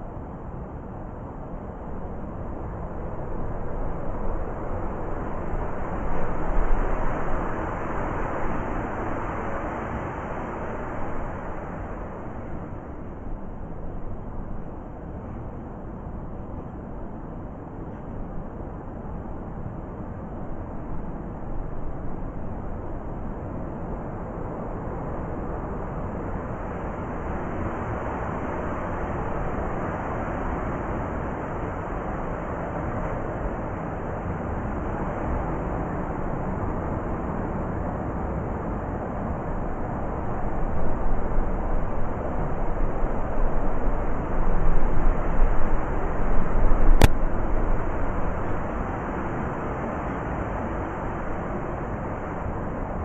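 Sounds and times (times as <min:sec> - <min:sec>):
blizzard wind blowing: 0:00.0 - 0:53.0.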